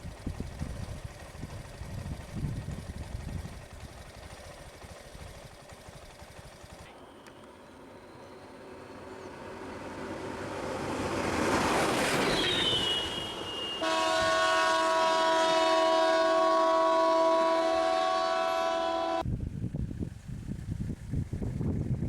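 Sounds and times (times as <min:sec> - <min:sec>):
loud multi-tone horn: 0:12.2 - 0:19.2.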